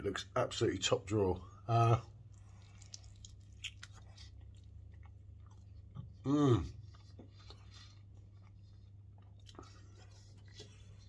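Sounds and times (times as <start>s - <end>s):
man chewing food: 2.0s - 11.0s
man humming: 6.2s - 6.8s.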